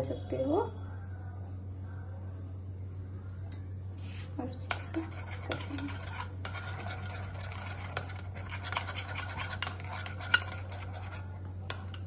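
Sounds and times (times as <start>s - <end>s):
batter stirring wet scraping: 4.0s - 12.0s.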